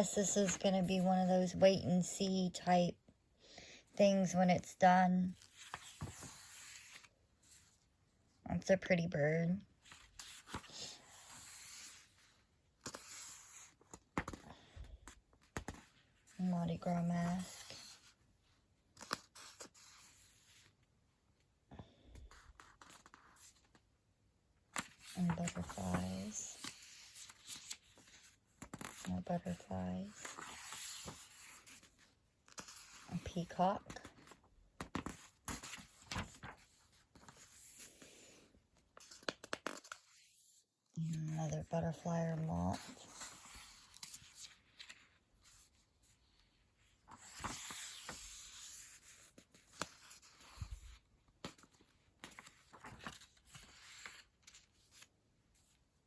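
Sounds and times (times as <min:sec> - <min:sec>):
paper pages turning: 0:05.4 - 0:07.6, 0:22.3 - 0:23.8, 0:24.7 - 0:37.9, 0:39.0 - 0:40.2, 0:42.7 - 0:46.2, 0:46.8 - 0:55.8.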